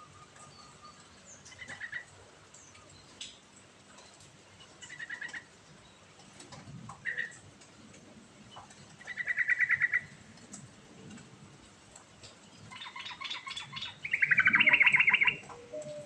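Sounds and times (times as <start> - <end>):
bird singing: 0.0 - 3.2, 12.5 - 16.0
bird trill: 12.7 - 16.0.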